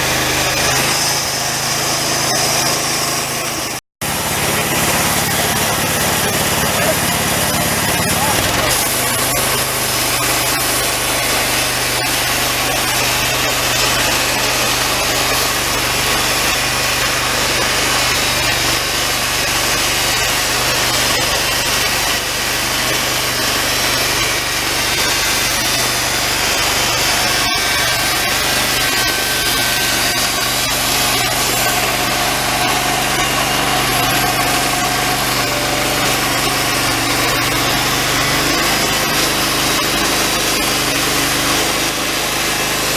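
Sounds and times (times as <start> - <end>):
band sawmill engine running: 0.0 - 42.9
saw blade hissing through log: 4.1 - 42.9.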